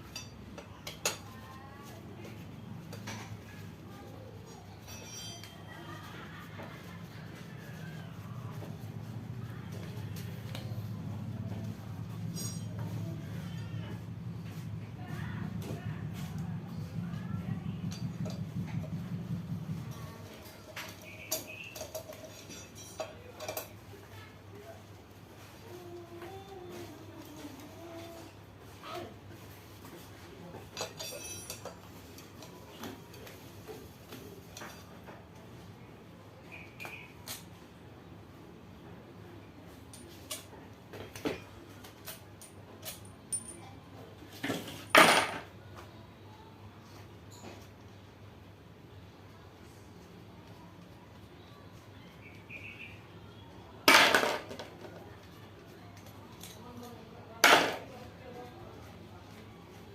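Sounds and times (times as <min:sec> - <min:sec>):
metal tools clinking: 0:02.8 - 0:06.3, 0:12.0 - 0:13.8, 0:19.9 - 0:23.8, 0:30.7 - 0:33.4, 0:41.1 - 0:43.8
metal parts clattering: 0:12.3 - 0:12.8, 0:30.8 - 0:31.8.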